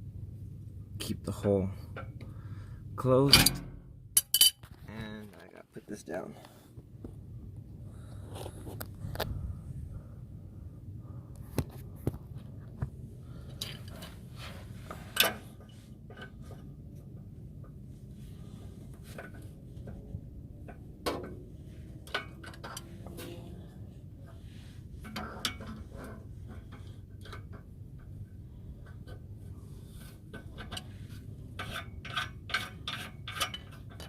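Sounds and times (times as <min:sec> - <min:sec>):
wind rumble on microphone: 0:06.7 - 0:14.8.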